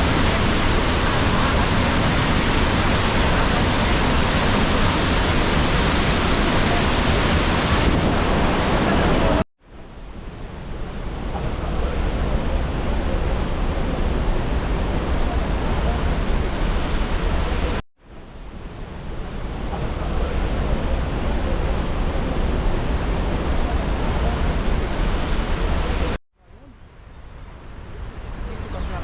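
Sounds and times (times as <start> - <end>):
waterfall rushing: 0.0 - 9.4, 11.0 - 17.8, 19.3 - 26.2
wind rumbling on microphone: 0.0 - 29.0.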